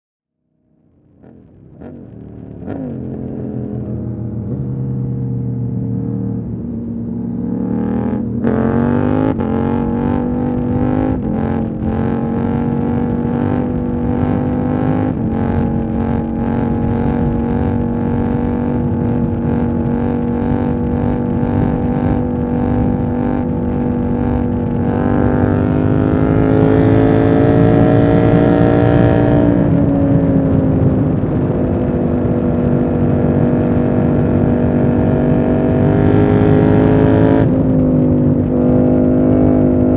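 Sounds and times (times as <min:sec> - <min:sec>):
motorcycle engine: 0:00.7 - 0:39.9.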